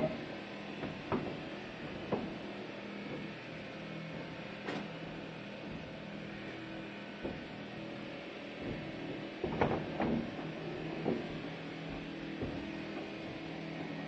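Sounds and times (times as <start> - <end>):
heavy machinery engine running: 0.0 - 14.0.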